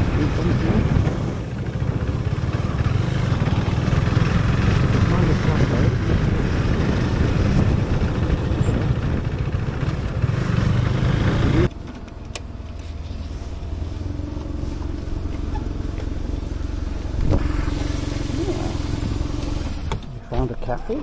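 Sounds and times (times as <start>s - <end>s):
wind rush on microphone: 0.0s - 11.6s, 17.2s - 19.2s
motorcycle engine drone: 0.0s - 21.0s.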